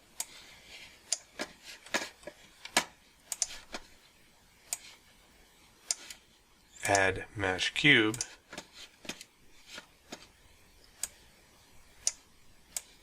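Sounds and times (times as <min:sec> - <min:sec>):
keyboard and mouse clicks: 0:02.7 - 0:03.8.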